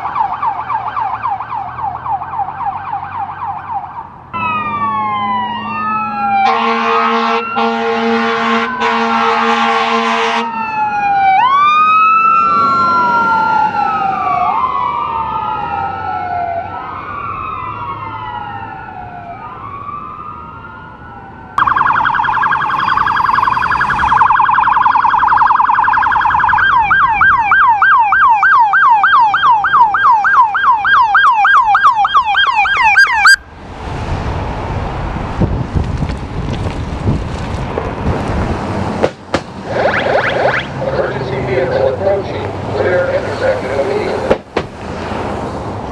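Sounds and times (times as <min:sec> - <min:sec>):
siren warble and yelp: 0:00.0 - 0:09.6, 0:10.2 - 0:33.4, 0:39.6 - 0:44.4
electronic siren wailing: 0:00.0 - 0:33.4, 0:39.6 - 0:44.3
air horn blasts: 0:06.4 - 0:10.5.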